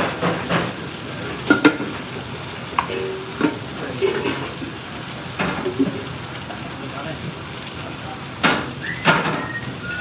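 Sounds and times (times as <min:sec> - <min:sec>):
utensils knocking on cookware: 0:00.0 - 0:04.8, 0:05.4 - 0:06.1, 0:08.4 - 0:09.5
food sizzling in a pan: 0:00.0 - 0:10.0.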